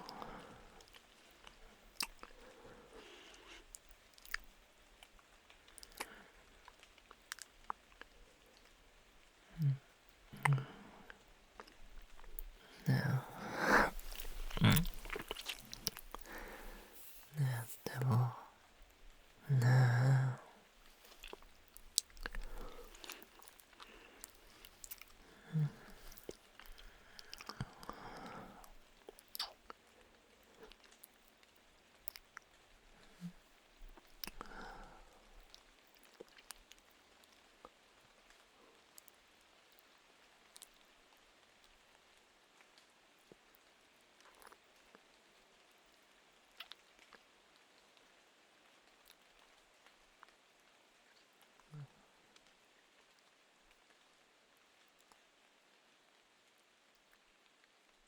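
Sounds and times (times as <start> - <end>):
wet lip clicks and smacks: 0.0 - 2.6, 3.2 - 8.8, 9.6 - 18.4, 20.8 - 29.8, 32.0 - 34.7
soft breath: 0.0 - 3.8, 9.5 - 28.9, 34.2 - 35.4
quiet breaths: 0.0 - 46.1, 47.6 - 54.2
lip smacks and kisses: 2.0 - 2.4, 11.6 - 18.4, 29.1 - 29.7.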